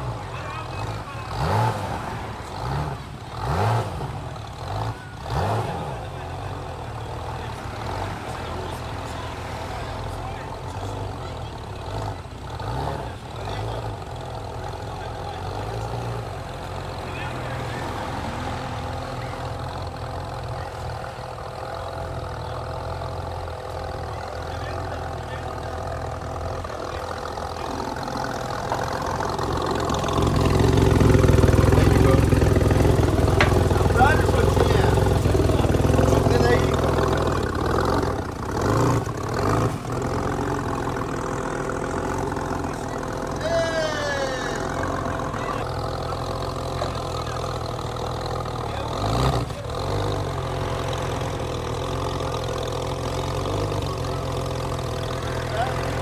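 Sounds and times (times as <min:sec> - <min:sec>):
vehicle engine idling: 0:00.0 - 0:56.0.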